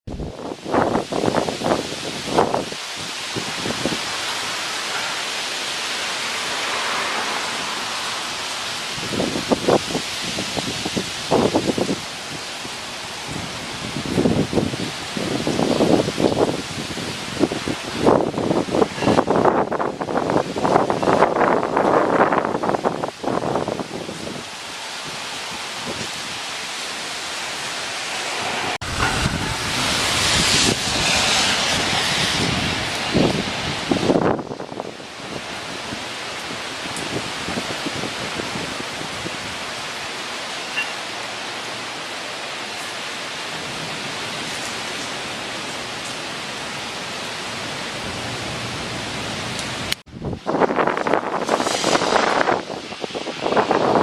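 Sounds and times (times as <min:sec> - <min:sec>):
wind gusting: 0:00.1 - 0:54.0
low buffeting on microphone: 0:28.7 - 0:34.9.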